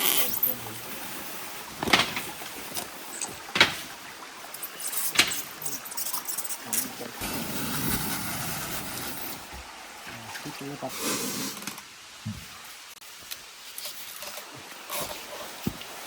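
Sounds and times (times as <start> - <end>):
steady hiss: 0.0 - 16.0
sharp knocks: 1.8 - 2.4, 3.3 - 3.9.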